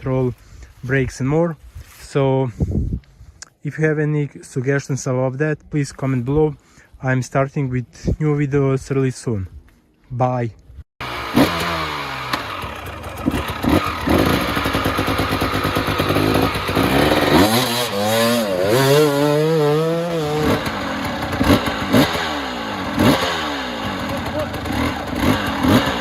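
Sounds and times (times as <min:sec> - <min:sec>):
dirt bike engine revving: 0:11.0 - 0:26.0.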